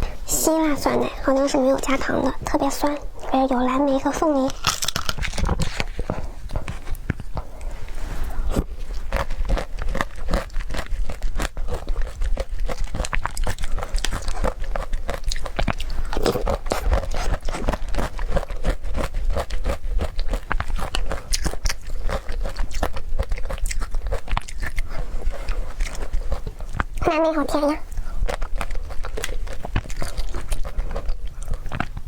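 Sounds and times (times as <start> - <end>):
close chewing with mouth clicks: 0.4 - 32.0
small crunches: 3.2 - 27.1.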